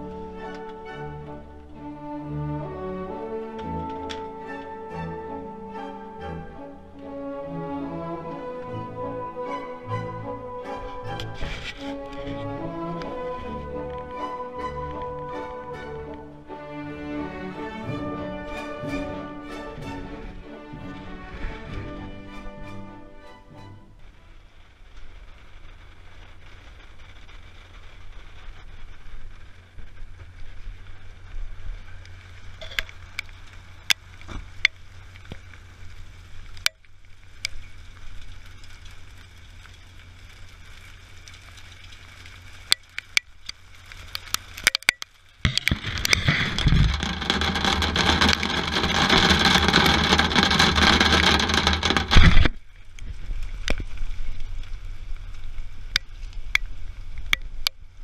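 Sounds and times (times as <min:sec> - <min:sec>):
loud hiss of rain: 0:00.0 - 0:58.0
raindrops ticking on camera: 0:00.0 - 0:58.0
low rumble: 0:45.5 - 0:58.0.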